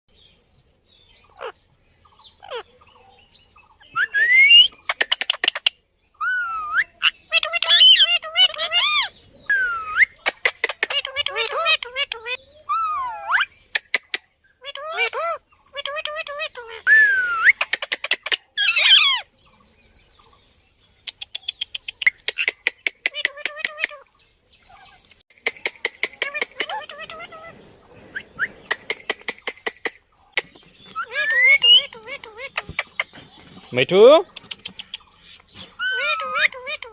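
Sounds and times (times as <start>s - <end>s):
parrot whistling and calling: 3.8s - 5.6s, 6.2s - 19.3s, 28.1s - 33.1s, 35.8s - 36.9s
parrot clicking chirps: 21.0s - 24.0s, 34.3s - 36.9s.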